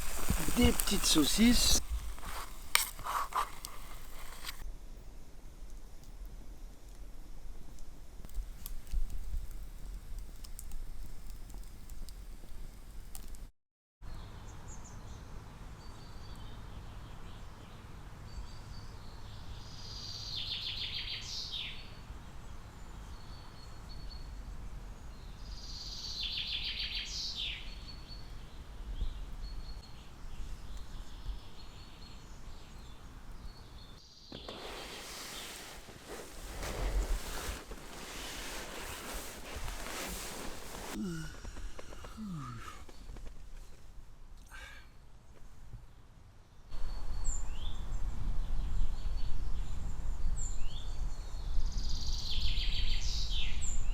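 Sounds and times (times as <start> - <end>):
songbird singing: 0.0 - 4.6.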